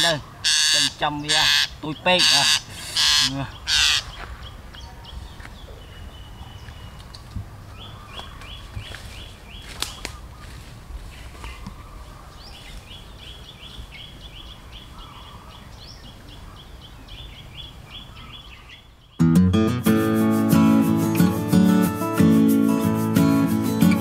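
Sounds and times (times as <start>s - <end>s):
bird chirping rapidly: 0.0s - 7.0s.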